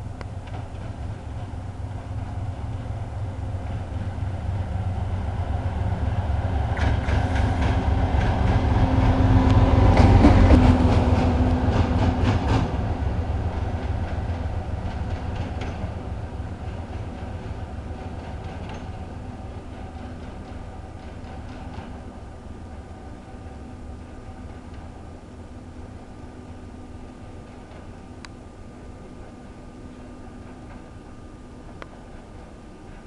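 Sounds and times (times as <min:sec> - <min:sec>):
diesel locomotive engine drone: 0:00.0 - 0:33.0
wheels clicking over rail joints: 0:06.7 - 0:22.6.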